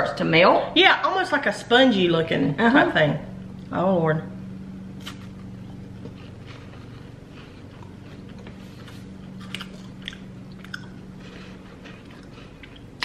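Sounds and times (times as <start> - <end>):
chewing and biting: 5.0 - 13.0.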